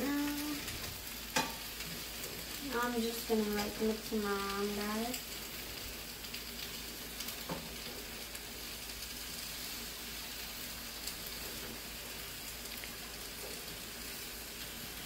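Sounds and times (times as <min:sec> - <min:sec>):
mushrooms and onions sizzling: 0:00.0 - 0:15.0
spatula tapping pan: 0:01.3 - 0:01.6.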